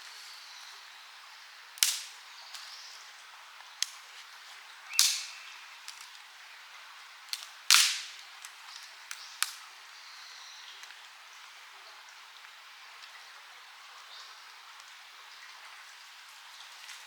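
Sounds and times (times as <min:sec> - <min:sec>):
campfire crackling: 0:01.6 - 0:09.9
sharp snaps: 0:01.8 - 0:02.8, 0:03.8 - 0:04.1, 0:04.9 - 0:06.2, 0:07.3 - 0:09.7
wood pops with hiss: 0:01.8 - 0:02.9, 0:03.7 - 0:06.3, 0:07.3 - 0:09.6.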